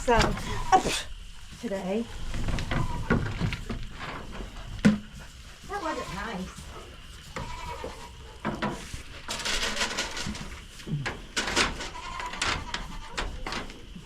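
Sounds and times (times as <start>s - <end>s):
rustling: 0.0s - 14.0s
goats bleating: 5.7s - 6.5s, 7.3s - 8.2s.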